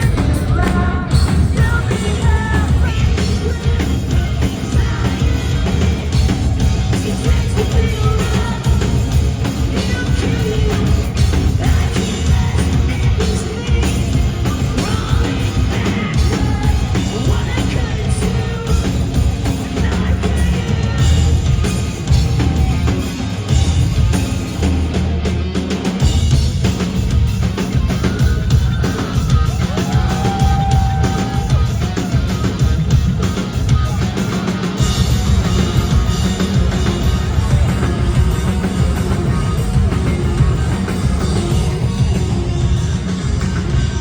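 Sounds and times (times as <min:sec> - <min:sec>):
person singing: 0:00.0 - 0:22.7
drums: 0:00.0 - 0:44.0
live rock band playing: 0:00.0 - 0:44.0.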